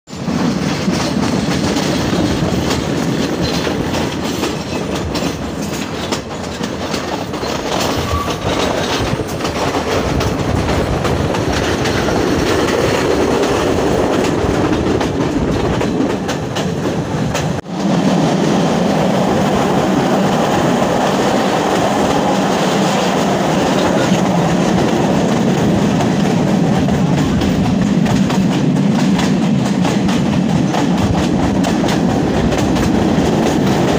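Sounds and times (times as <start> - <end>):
train wheels clacking on rails: 0.1 - 33.9.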